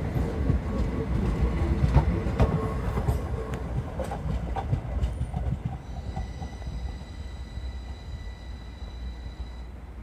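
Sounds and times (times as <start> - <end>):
train wheels clicking over rail joints: 0.0 - 7.9
low train rumble: 0.0 - 10.0.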